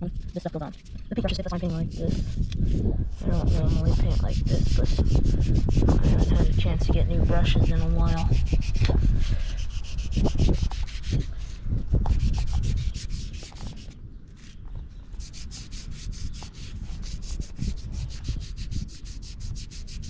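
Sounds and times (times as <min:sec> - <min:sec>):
scratchy paintbrush strokes on steel: 0:12.2 - 0:20.0.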